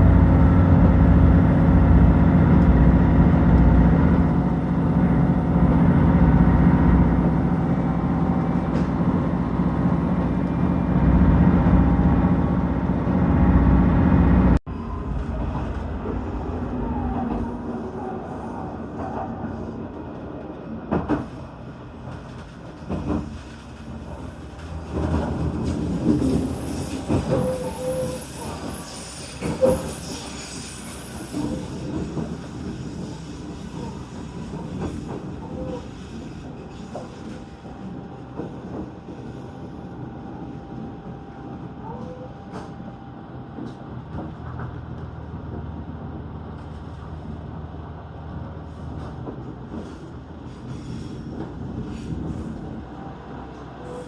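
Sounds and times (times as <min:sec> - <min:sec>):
train wheels rumbling on track: 0:00.0 - 0:54.0
wheel squeal: 0:26.2 - 0:37.2.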